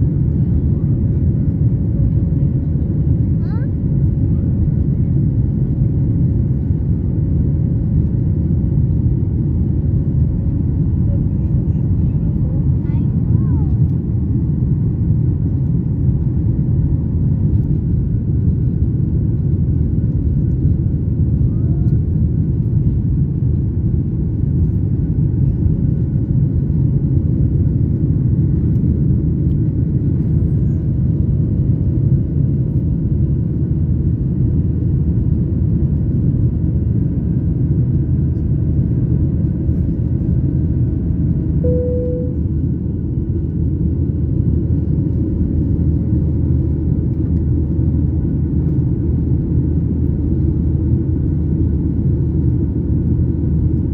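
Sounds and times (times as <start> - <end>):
airliner cabin rumble: 0.0 - 53.9
brief higher tone: 41.6 - 42.6.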